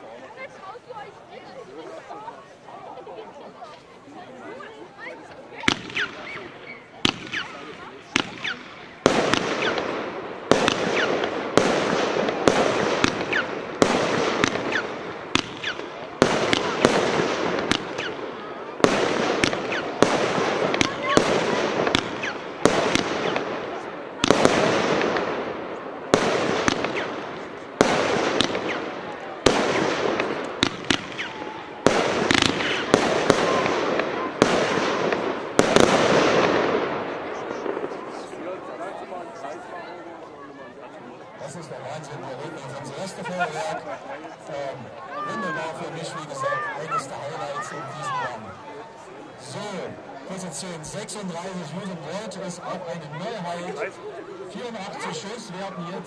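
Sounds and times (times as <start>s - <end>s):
firework crackle: 5.6s - 38.4s
firework shots: 5.6s - 38.9s.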